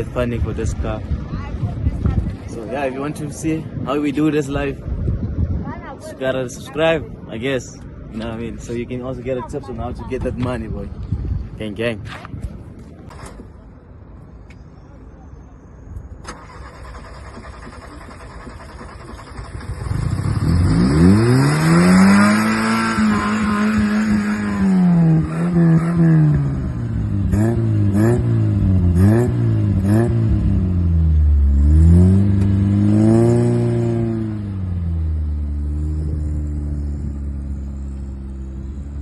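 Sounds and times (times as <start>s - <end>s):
car engine revving: 16.4s - 39.0s.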